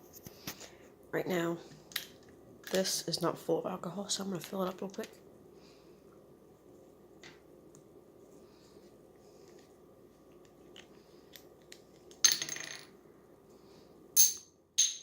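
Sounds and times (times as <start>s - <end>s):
small metal items clinking: 14.2s - 15.0s.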